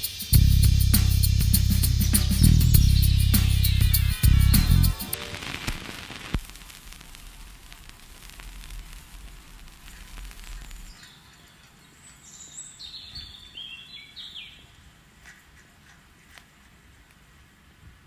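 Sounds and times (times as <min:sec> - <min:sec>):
background hiss: 0:00.0 - 0:18.0
low hum: 0:00.4 - 0:05.8.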